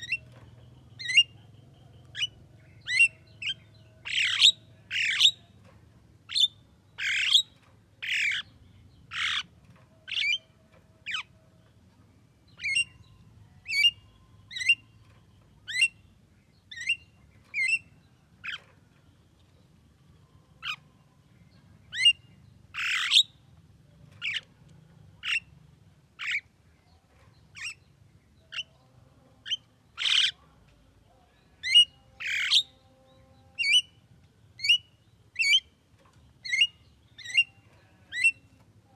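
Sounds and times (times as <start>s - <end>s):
bird harsh squawks: 6.3s - 7.4s, 22.8s - 23.2s, 30.0s - 30.4s.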